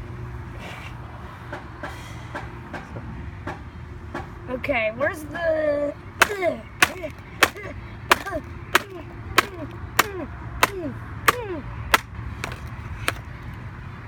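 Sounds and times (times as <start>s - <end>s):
sharp strikes on laptop keyboard: 6.2s - 13.3s.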